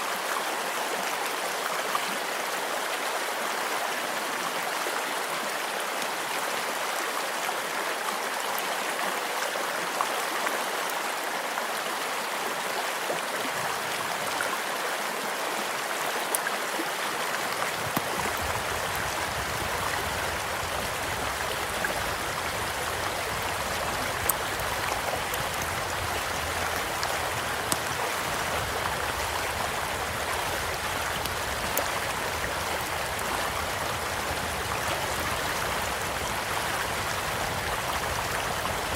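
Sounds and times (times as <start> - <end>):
stream flowing: 0.0 - 38.9
campfire popping and crackling: 17.4 - 36.2.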